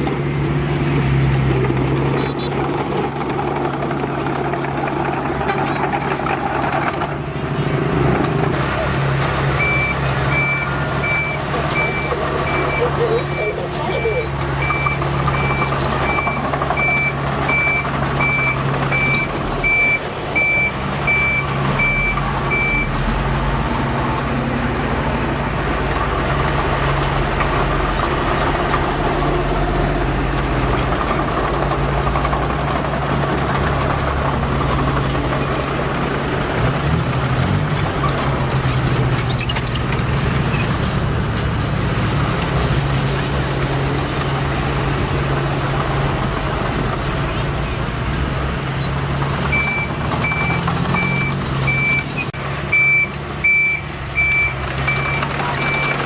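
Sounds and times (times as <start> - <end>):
diesel engine running: 0.0 - 56.0
reversing alarm beeping: 9.6 - 23.0, 49.5 - 56.0.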